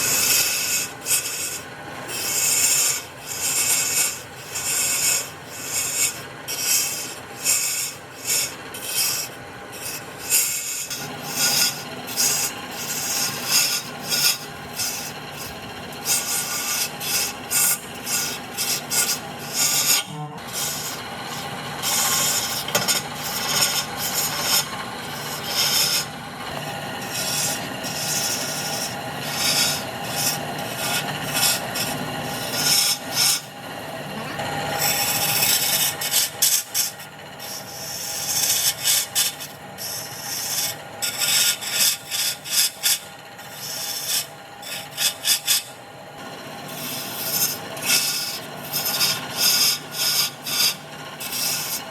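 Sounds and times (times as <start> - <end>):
tool scraping spinning wood: 0.0 - 51.9
wood lathe motor hum: 0.0 - 51.9.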